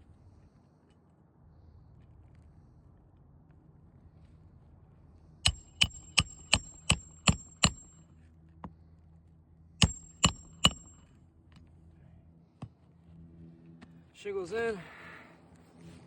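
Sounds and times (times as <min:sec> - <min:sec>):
hammer striking nails: 0:05.5 - 0:08.0, 0:09.8 - 0:11.1.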